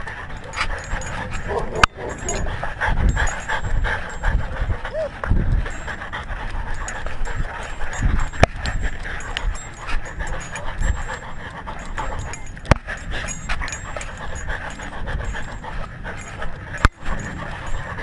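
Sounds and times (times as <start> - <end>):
dog panting: 0.0 - 18.0.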